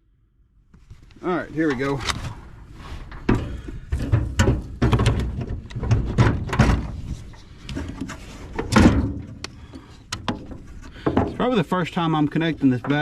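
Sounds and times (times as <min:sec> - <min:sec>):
car battery clunks and scrapes: 0:01.7 - 0:11.5.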